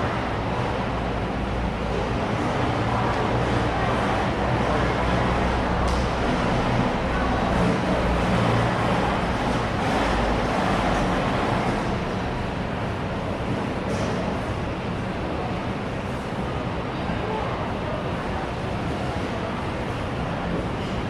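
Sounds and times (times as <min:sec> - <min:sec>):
murmur of many voices: 0:00.0 - 0:21.0.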